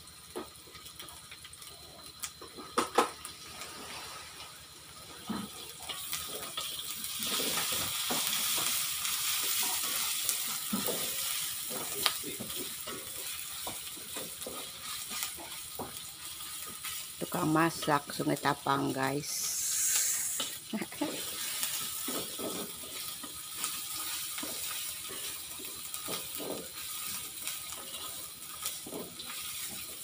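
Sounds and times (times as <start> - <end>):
spice paste sizzling in a wok: 0.0 - 30.0
wooden spatula scraping wok: 19.5 - 30.0.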